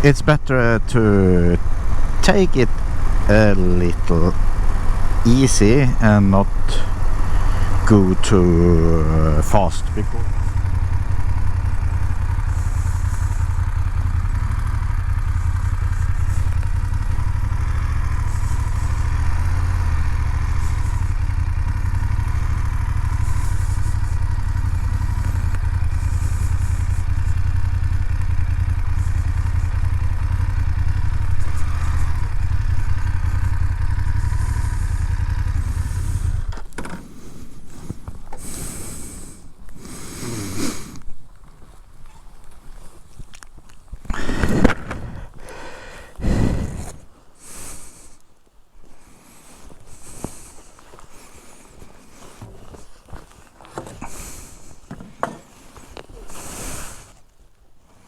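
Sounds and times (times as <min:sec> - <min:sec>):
motorcycle engine rumbling: 0:00.0 - 0:48.3, 0:48.9 - 0:57.2
rustling and scraping: 0:35.5 - 0:38.6, 0:48.9 - 0:58.0.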